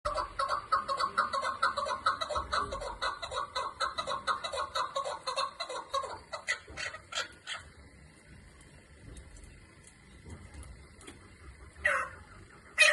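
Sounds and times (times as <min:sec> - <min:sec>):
partridge clucking call: 0:00.1 - 0:07.9, 0:10.8 - 0:12.9.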